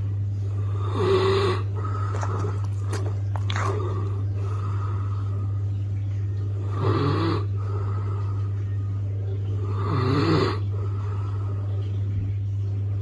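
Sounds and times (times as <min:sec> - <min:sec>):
steady low hum: 0:00.0 - 0:13.0
dog snoring: 0:00.5 - 0:02.6, 0:06.6 - 0:07.9, 0:09.6 - 0:10.9.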